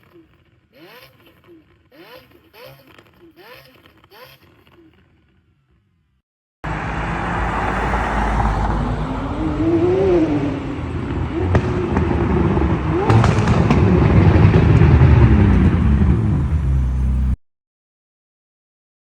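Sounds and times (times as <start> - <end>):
exhaust pops and crackles: 0.0 - 6.2, 10.9 - 16.3
sports car engine revving: 0.0 - 17.3.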